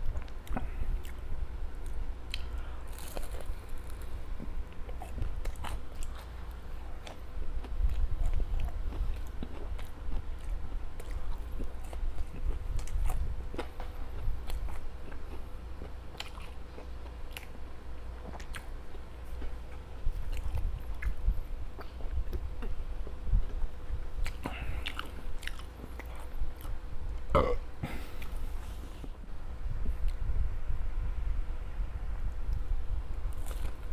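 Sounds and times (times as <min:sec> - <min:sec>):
small crunches: 0:01.8 - 0:07.2, 0:33.3 - 0:33.9
close chewing and biting: 0:01.8 - 0:17.6, 0:18.2 - 0:26.8, 0:33.3 - 0:33.9.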